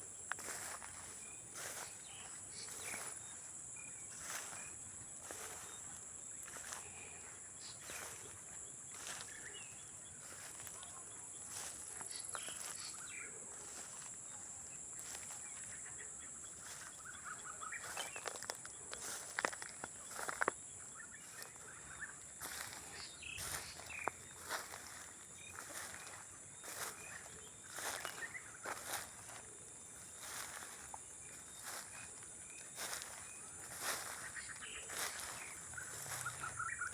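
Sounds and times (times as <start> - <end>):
crickets trilling: 0.0 - 36.9
bird chirps: 15.0 - 29.4, 30.2 - 36.9.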